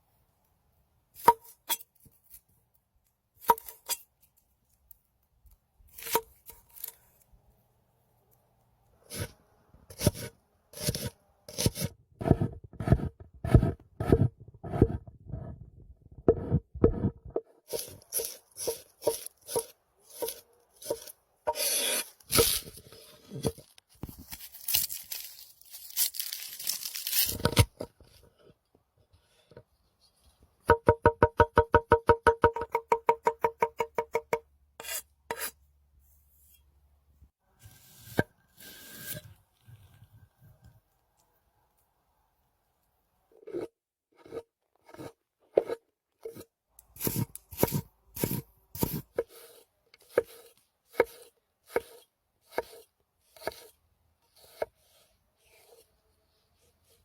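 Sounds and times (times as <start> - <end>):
rough tearing scraping noise: 17.7 - 27.8, 37.6 - 40.1
knife chopping on a board: 47.0 - 49.4, 50.0 - 52.8.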